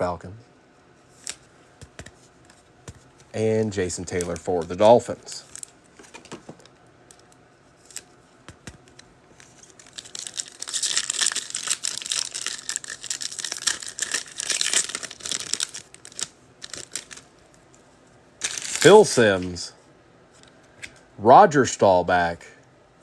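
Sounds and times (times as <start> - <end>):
foil wrapper crinkling: 8.8 - 17.3, 18.4 - 19.3.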